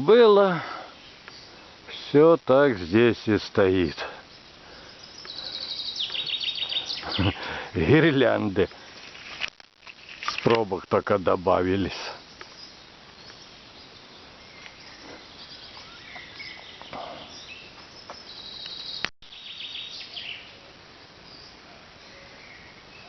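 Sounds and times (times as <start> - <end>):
insects: 0.0 - 23.0
bird chirps: 4.2 - 7.6, 12.2 - 20.6.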